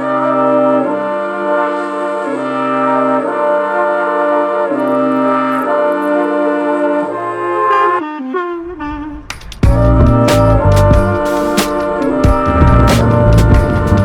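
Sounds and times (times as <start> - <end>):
low bass note: 8.7 - 11.3, 11.9 - 14.0
background music of held chords: 9.3 - 14.0.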